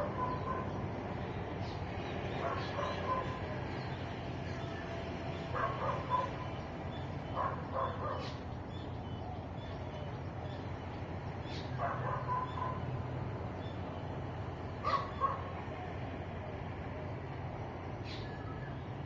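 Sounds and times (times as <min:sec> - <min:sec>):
dog barking: 0:00.0 - 0:00.8, 0:02.4 - 0:03.4, 0:05.5 - 0:06.4, 0:07.4 - 0:08.4, 0:11.8 - 0:12.8, 0:14.8 - 0:15.6.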